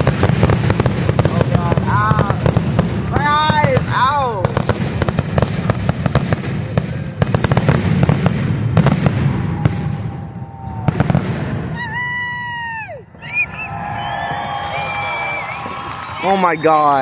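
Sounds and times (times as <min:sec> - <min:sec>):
fireworks crackling and banging: 0:00.0 - 0:12.9.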